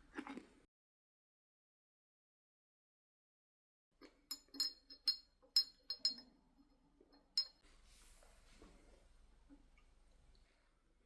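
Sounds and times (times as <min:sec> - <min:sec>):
glass kitchenware clinking: 0:04.3 - 0:06.3, 0:07.2 - 0:07.6
soft steady hiss: 0:07.1 - 0:11.0.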